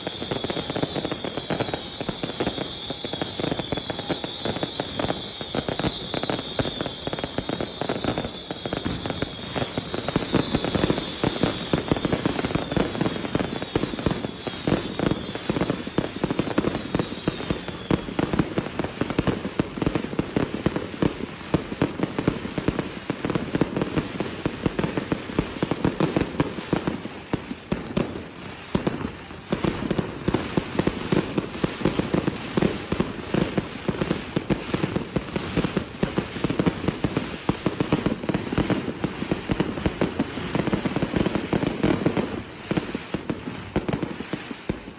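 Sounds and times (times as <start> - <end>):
high whistling: 0.0 - 18.2
fireworks crackling and banging: 0.0 - 44.9.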